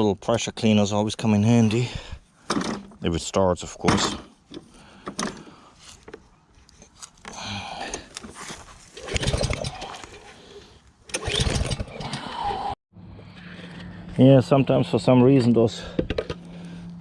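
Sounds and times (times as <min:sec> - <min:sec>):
small engine pull-start cranking: 0:09.0 - 0:10.3, 0:11.1 - 0:12.6.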